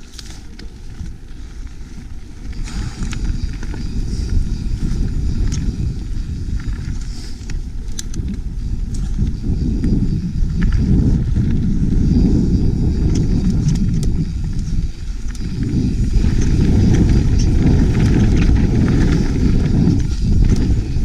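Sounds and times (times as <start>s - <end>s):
clicks and rattles over rock: 0.0s - 21.0s
wind buffeting microphone: 0.0s - 21.0s.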